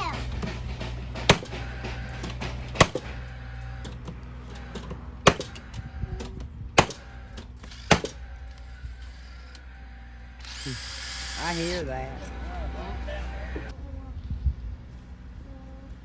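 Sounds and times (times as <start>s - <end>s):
steady low hum: 0.0s - 16.0s
sharp knocks on siding: 0.2s - 3.3s, 5.2s - 5.6s, 7.9s - 8.2s.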